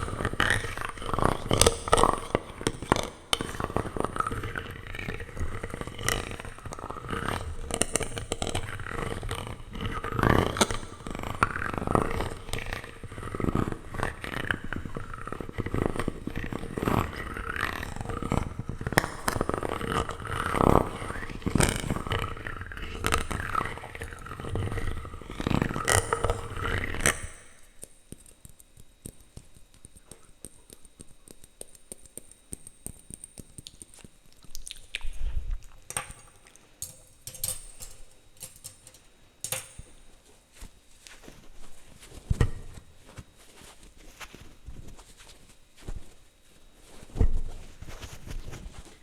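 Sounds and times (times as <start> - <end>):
plastic utensils scraping microphone: 0.0 - 27.8.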